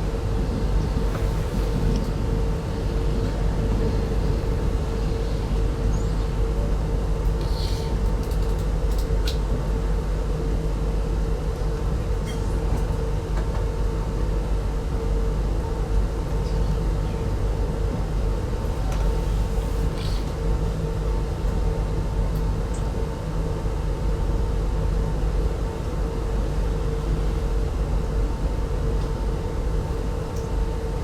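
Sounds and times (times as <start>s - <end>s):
passenger coach rumbling on track: 0.0s - 8.6s.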